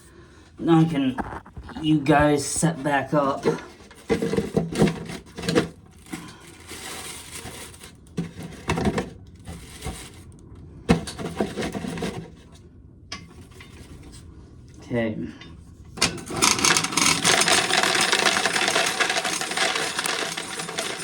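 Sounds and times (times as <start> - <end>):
corn being shelled: 1.2 - 1.8, 16.0 - 21.0.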